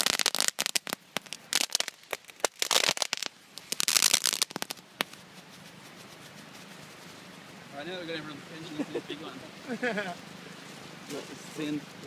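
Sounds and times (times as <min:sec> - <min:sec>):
firework crackling: 0:00.0 - 0:07.8
faint hiss: 0:00.0 - 0:12.0.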